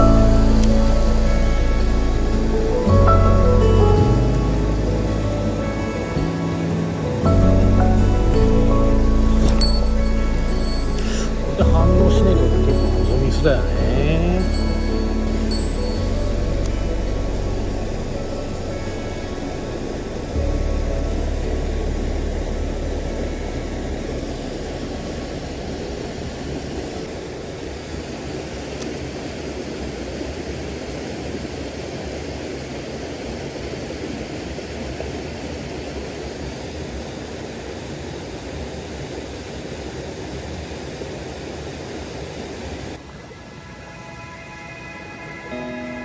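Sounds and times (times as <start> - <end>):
low rumble: 0.0 - 27.8
rushing mountain stream: 0.0 - 46.0.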